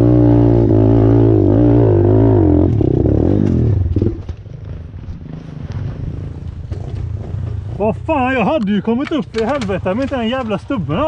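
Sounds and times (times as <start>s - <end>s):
motorbike engine revving hard: 0.0s - 5.4s.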